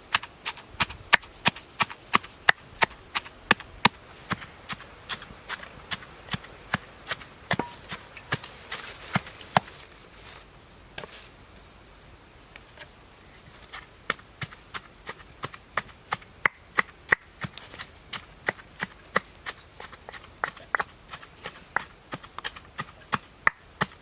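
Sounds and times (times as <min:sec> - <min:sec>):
knife chopping on wooden board: 0:07.1 - 0:08.0.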